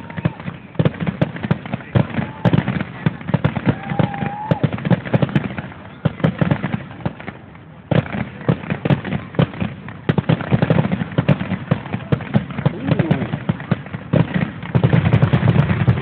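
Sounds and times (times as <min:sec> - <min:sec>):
fireworks bursts and bangs: 0:00.0 - 0:16.0.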